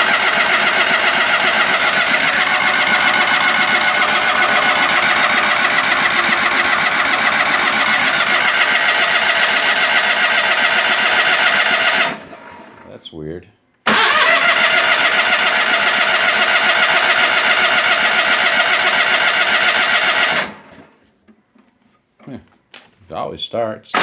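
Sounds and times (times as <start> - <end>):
engine cranking on starter: 0.0 - 13.0, 13.8 - 21.0.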